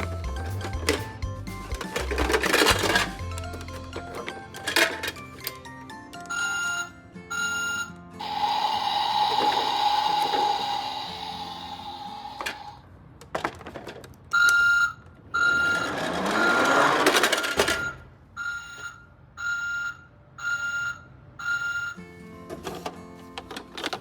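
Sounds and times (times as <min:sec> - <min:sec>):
noisy rising whoosh: 0:08.2 - 0:12.8.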